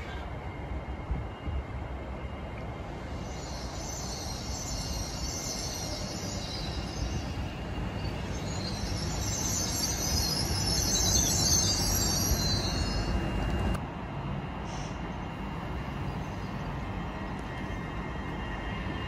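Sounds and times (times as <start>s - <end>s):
train rumble: 0.0s - 19.0s
high-pitched hiss: 3.0s - 13.5s.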